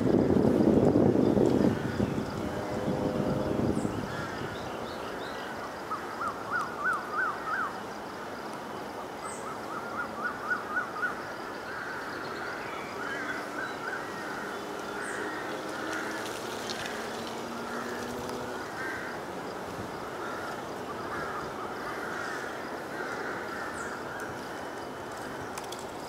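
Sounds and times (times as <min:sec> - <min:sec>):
outdoor background noise: 0:00.0 - 0:26.0
bird calling: 0:03.8 - 0:07.8, 0:09.0 - 0:19.3.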